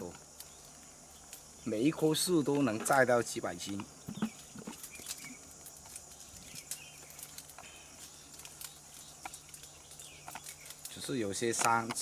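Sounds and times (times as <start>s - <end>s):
light clicks and rustles: 2.5s - 12.0s.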